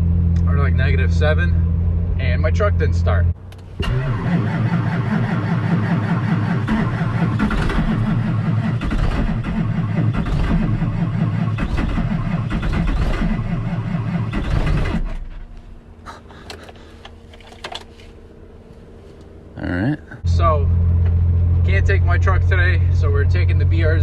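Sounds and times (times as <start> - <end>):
truck engine cranking: 3.4 - 18.2.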